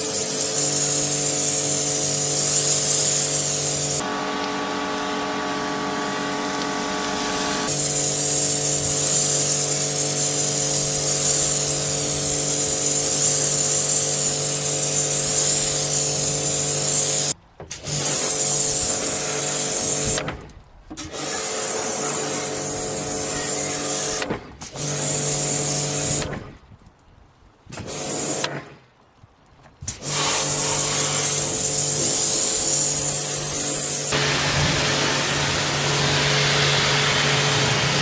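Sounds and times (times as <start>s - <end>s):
pressure washer motor hum: 0.0s - 17.4s, 30.1s - 38.0s
water jet hissing on carpet: 0.0s - 17.4s, 29.9s - 38.0s.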